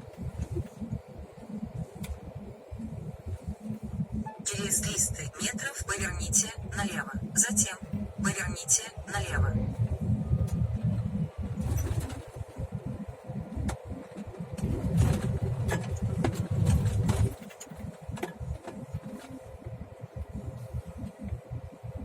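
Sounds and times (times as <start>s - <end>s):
diesel engine rumbling: 4.5s - 18.6s.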